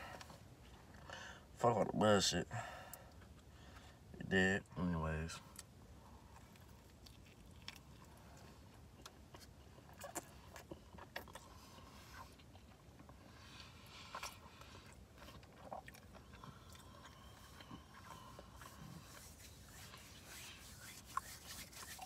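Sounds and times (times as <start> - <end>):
person chewing food: 5.5 - 22.0.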